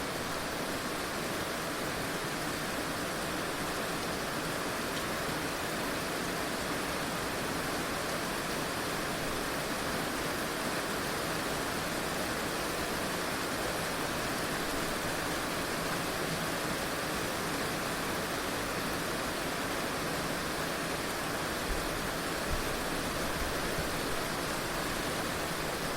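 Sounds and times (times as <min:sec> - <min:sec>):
heavy rain falling: 0:00.0 - 0:25.9.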